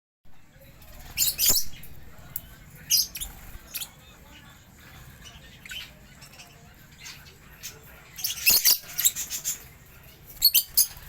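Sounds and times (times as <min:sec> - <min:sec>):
lovebirds shrill chirps: 0:01.0 - 0:01.9, 0:02.8 - 0:04.0, 0:05.2 - 0:11.0.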